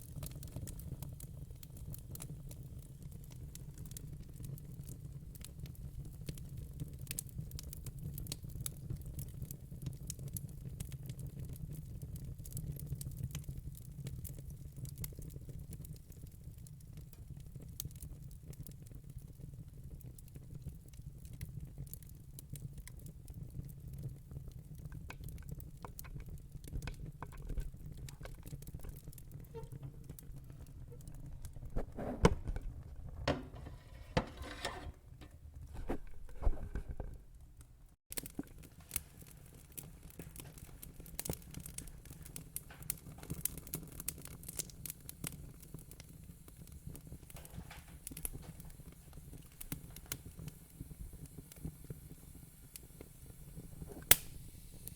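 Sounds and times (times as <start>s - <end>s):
wood fire crackling and popping: 0.0s - 54.9s
fire hissing: 38.6s - 54.9s.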